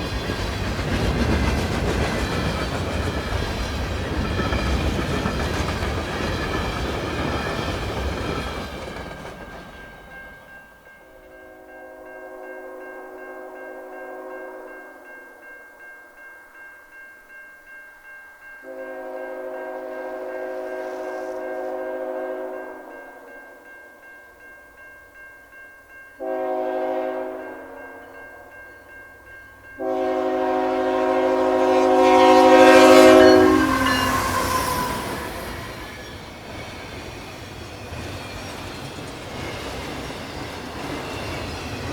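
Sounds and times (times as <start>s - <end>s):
train wheel and rail rumble: 0.0s - 15.2s, 18.6s - 23.8s, 24.8s - 41.9s
bell ringing steadily: 9.7s - 20.8s, 21.4s - 36.5s
locomotive air horn blasts: 18.7s - 22.8s, 26.2s - 27.7s, 29.8s - 35.7s.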